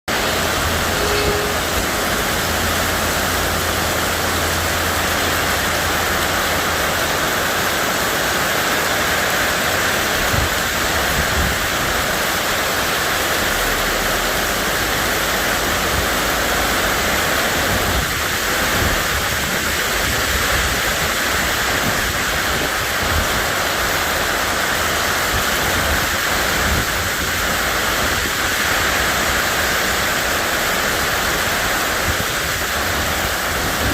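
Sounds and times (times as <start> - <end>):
heavy rain pouring: 0.1 - 33.9.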